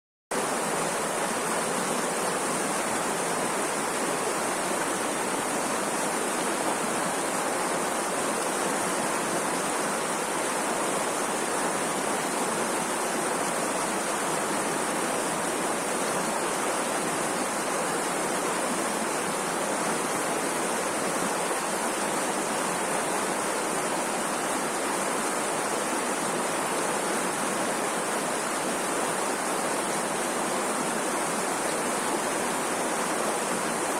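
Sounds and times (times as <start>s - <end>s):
rushing water: 0.3s - 33.9s.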